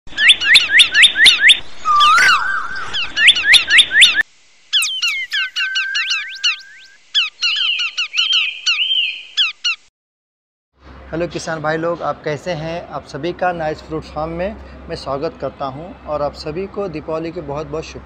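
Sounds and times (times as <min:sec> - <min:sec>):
bird trilling call: 0:00.1 - 0:09.9
rapid bird chirping: 0:00.1 - 0:09.9.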